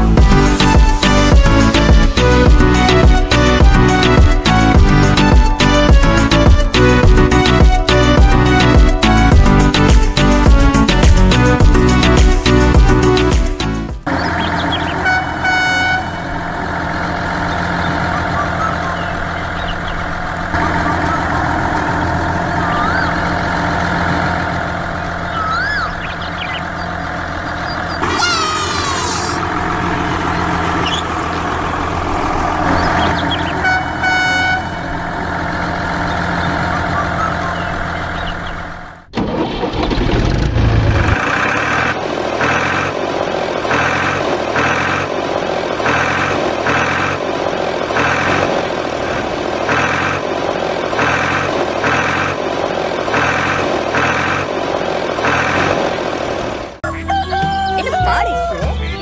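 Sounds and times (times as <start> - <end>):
pulsing engine: 0.0 - 56.8
truck engine running: 0.0 - 59.0
horn honking: 14.1 - 38.8.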